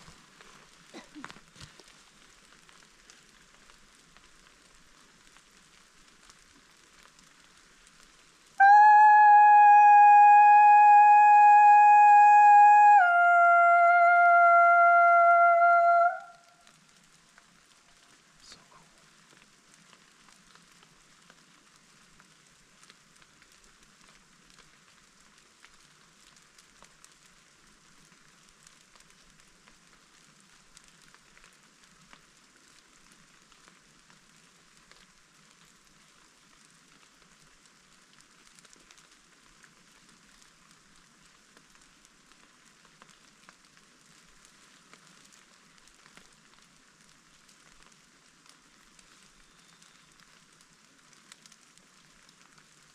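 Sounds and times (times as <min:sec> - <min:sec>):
faint rain pattering: 0:00.0 - 0:52.9.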